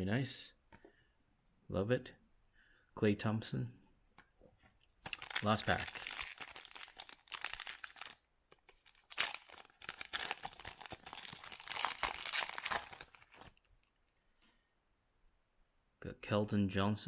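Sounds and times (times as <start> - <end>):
foil wrapper tearing and crinkling: 5.0 - 13.6.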